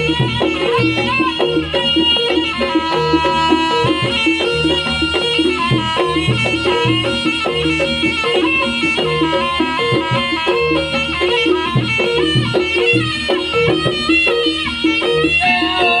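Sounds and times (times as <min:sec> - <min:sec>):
reedy wind instrument melody: 0:00.0 - 0:16.0
steady drumming: 0:00.0 - 0:16.0
struck percussion: 0:00.0 - 0:16.0.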